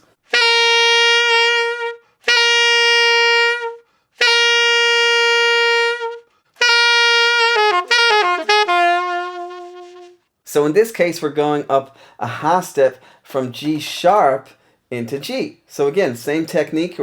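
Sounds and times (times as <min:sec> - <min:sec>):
alto saxophone notes: 0:00.2 - 0:10.2.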